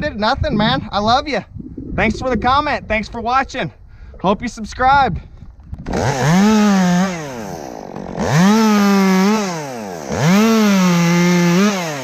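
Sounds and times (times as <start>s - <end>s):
chainsaw revving and idling: 5.8s - 12.0s.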